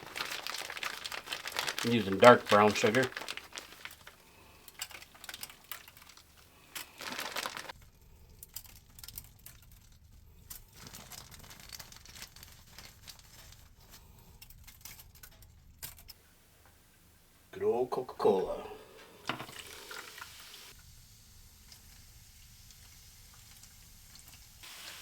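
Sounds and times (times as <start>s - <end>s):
sugar crinkling and rustling: 0.0s - 17.5s, 21.7s - 25.0s.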